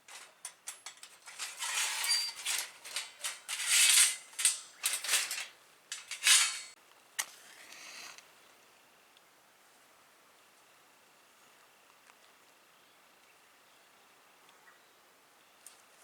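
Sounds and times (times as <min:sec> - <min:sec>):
rustling and scraping of gear: 0:00.0 - 0:06.8.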